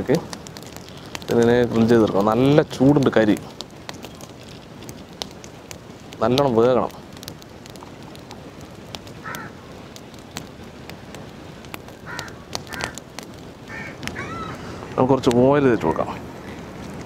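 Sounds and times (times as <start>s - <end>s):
charcoal fire crackling: 0.0s - 17.0s
harsh bird calls: 9.2s - 9.6s, 11.8s - 15.0s.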